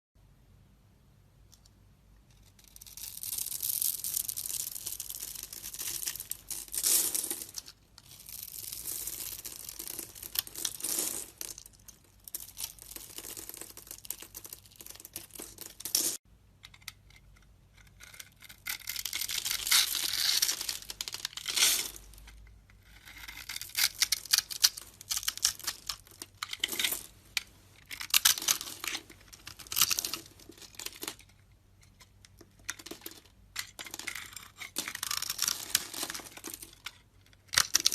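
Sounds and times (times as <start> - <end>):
blade carving soap: 22.6 - 25.6.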